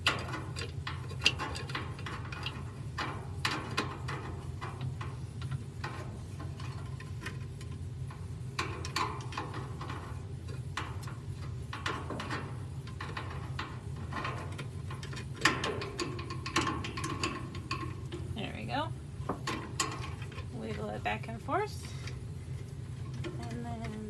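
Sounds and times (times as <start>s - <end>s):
light clicks and knocks of parts: 0.0s - 18.4s, 19.2s - 21.0s, 21.8s - 24.0s
steady low hum: 0.0s - 24.0s.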